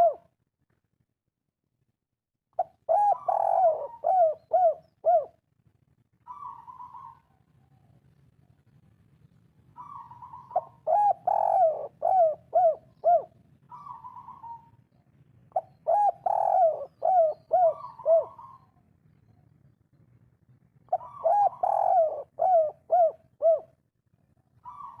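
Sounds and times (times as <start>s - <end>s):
dove cooing: 0.0s - 0.3s, 2.6s - 5.4s, 6.2s - 7.9s, 9.8s - 14.8s, 15.5s - 18.8s, 20.9s - 23.8s, 24.6s - 25.0s.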